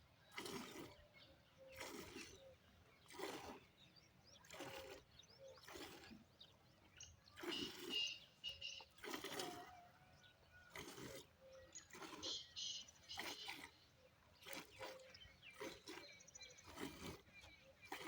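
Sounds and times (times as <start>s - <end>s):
milk squirting into a pail: 4.4s - 6.1s, 8.9s - 9.8s.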